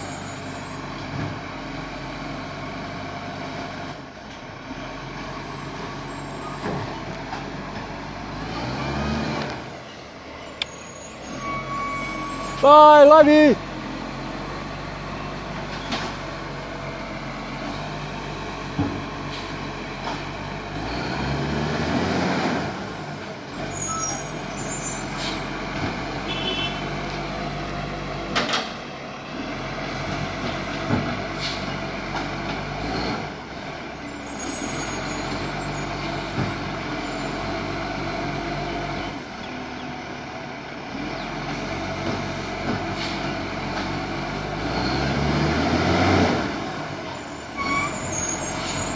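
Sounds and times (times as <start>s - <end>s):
garbage truck diesel engine: 0.0s - 48.9s
air brake hisses: 31.4s - 31.8s, 43.0s - 43.3s.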